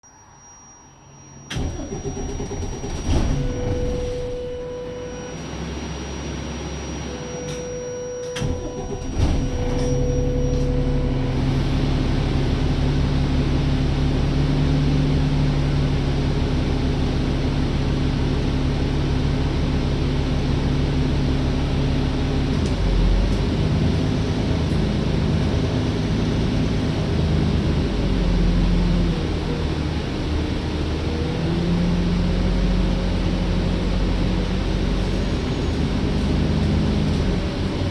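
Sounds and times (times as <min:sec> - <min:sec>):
dashboard warning beeps: 0:00.3 - 0:11.6, 0:33.6 - 0:37.8
bus engine cranking and idling: 0:01.4 - 0:37.9.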